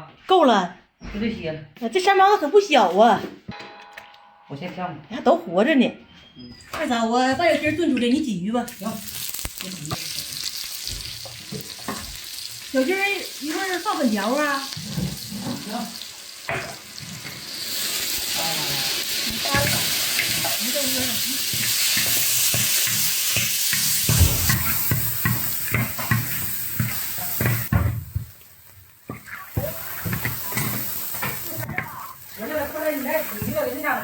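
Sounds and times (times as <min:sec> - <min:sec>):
food sizzling in hot oil: 0:08.6 - 0:34.0.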